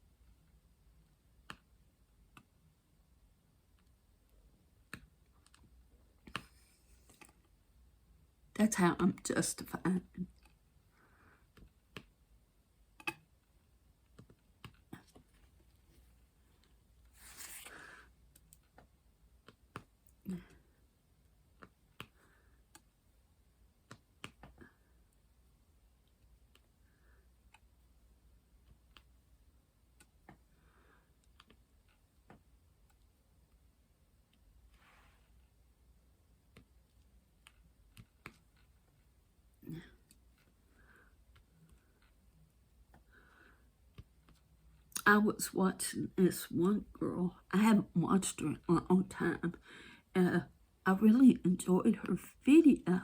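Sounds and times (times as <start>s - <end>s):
soft rustle: 15.0s - 17.9s, 34.6s - 35.6s.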